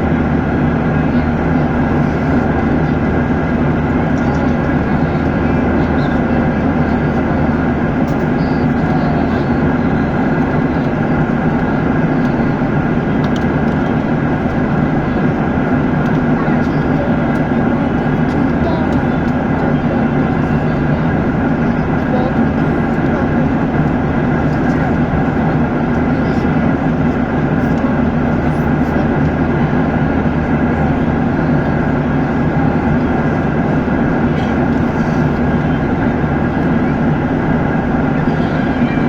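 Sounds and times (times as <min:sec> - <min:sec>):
airliner cabin engine rush: 0:00.0 - 0:39.0
even hum: 0:00.0 - 0:39.0.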